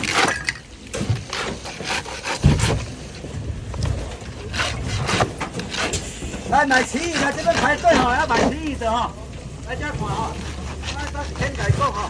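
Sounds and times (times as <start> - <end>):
scraping and rubbing: 0.0 - 12.0
knocks: 2.4 - 2.8.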